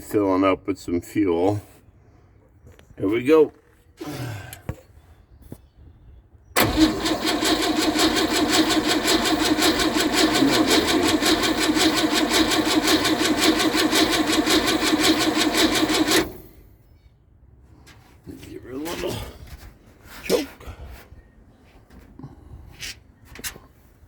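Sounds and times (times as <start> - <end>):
car engine cranking: 6.6 - 16.6.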